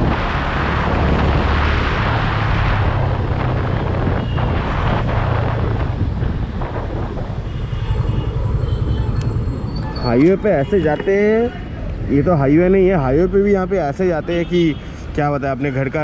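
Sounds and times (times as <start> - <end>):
wind rush on microphone: 0.0 - 10.0.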